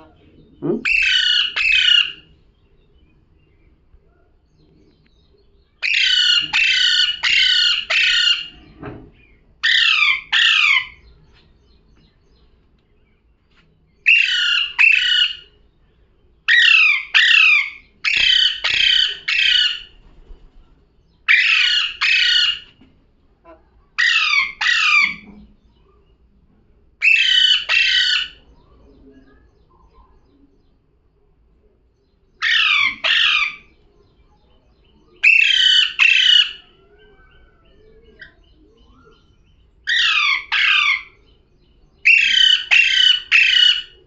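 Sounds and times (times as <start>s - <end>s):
parrot squawking harshly: 0.7s - 2.2s, 5.8s - 8.5s, 9.6s - 11.0s, 14.1s - 15.4s, 16.5s - 19.9s, 21.3s - 22.6s, 24.0s - 25.2s, 27.0s - 28.4s, 32.4s - 33.7s, 35.2s - 36.6s, 39.9s - 41.1s, 42.1s - 43.9s.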